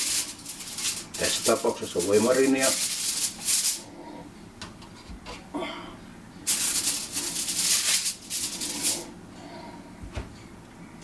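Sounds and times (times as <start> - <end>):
aluminium foil crinkling: 0.0 - 3.9, 6.5 - 9.1.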